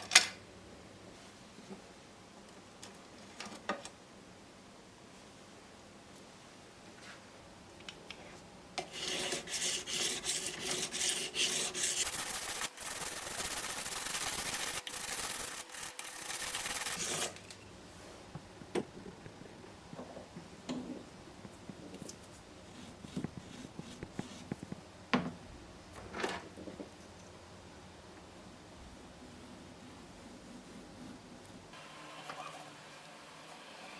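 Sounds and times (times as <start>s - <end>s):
abrasive tool scratching metal: 8.9s - 17.4s.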